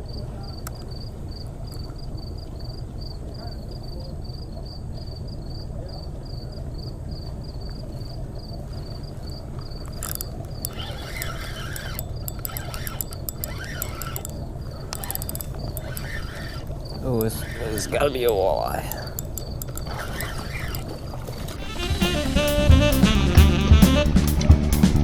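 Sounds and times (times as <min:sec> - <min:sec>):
insect chirping: 0:00.0 - 0:22.5
sharp clicks and short squeaks: 0:09.8 - 0:18.2, 0:18.9 - 0:22.2.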